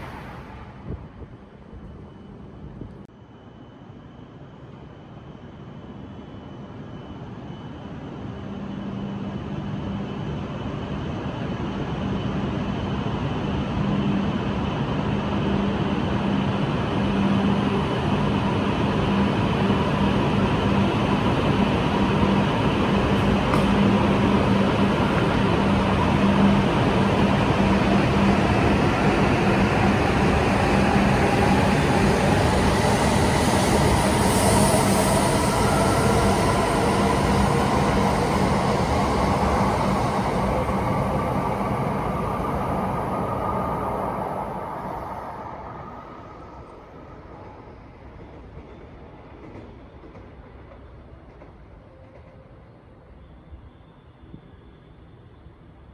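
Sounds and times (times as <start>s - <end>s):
train accelerating: 0.0s - 2.9s, 15.7s - 55.9s.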